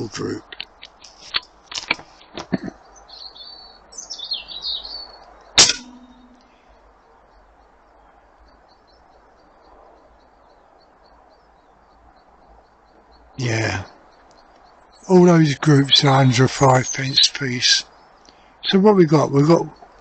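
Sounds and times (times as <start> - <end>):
birds chirping: 0.0 - 20.0
loud sharp crack: 5.6 - 6.5.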